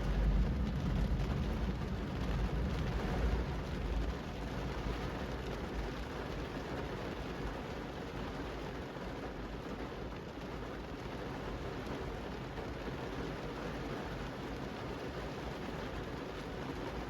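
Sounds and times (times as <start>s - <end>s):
deep low rumble: 0.0s - 4.4s
rain falling on a street: 0.0s - 17.0s.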